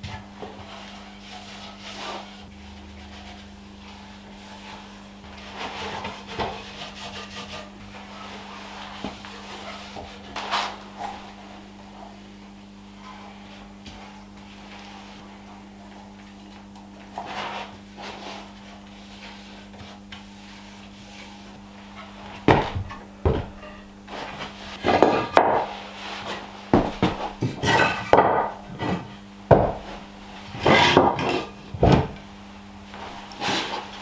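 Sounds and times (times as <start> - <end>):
hard objects knocking and clattering: 22.4 - 23.9, 26.7 - 32.2.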